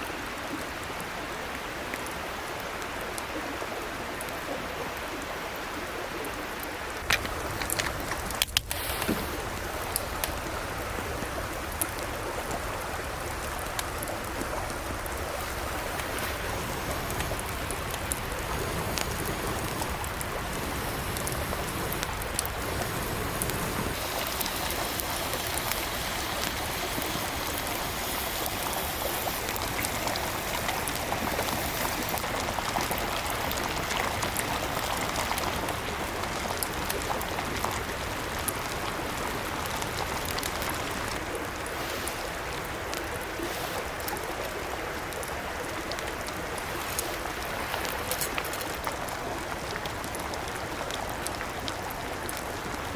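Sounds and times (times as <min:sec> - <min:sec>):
mountain stream babbling: 0:00.0 - 0:52.9.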